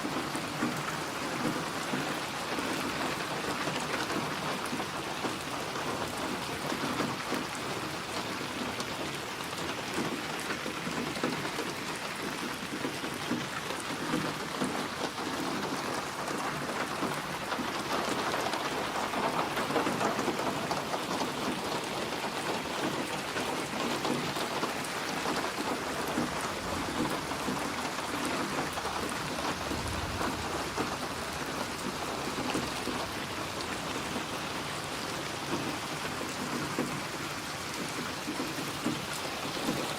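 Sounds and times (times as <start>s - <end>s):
heavy rain pattering: 0.0s - 39.9s
thunder rumble: 29.2s - 33.3s.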